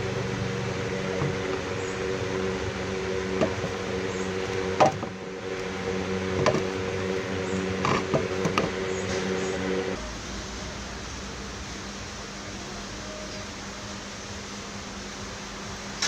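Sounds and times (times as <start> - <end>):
electric motor humming: 0.0 - 10.0
sharp knocks and creaks: 3.3 - 5.2, 6.3 - 6.8, 7.8 - 9.3.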